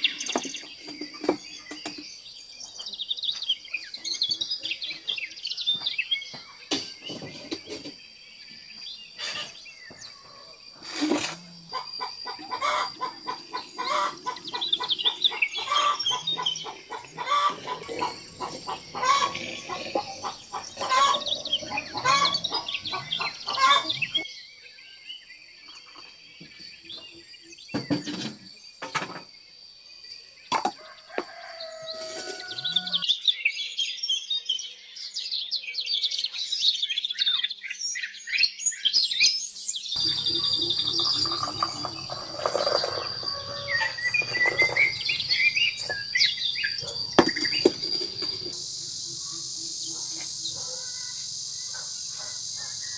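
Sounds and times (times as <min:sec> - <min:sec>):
birds chirping: 0:00.0 - 0:24.2, 0:40.0 - 0:52.9.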